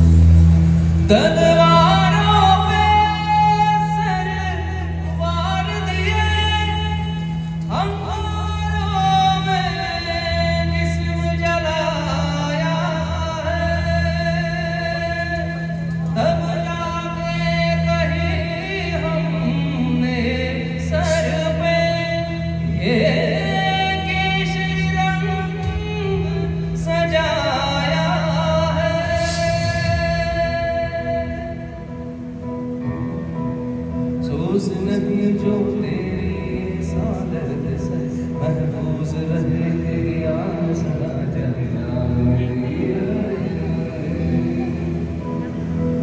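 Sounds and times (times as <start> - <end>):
low drone: 0.0 - 46.0
person singing: 0.9 - 33.2, 34.1 - 46.0
person singing wavering notes: 34.2 - 46.0.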